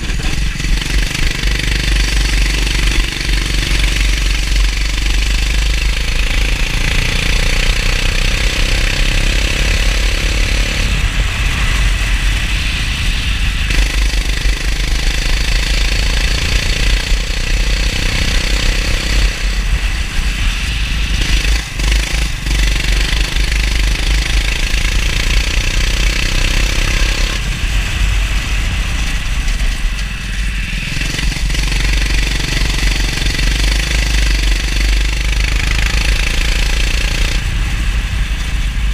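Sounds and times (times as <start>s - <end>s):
kart engine revving: 0.0s - 12.4s, 13.4s - 38.7s
wind and wet spray hiss: 10.7s - 38.9s.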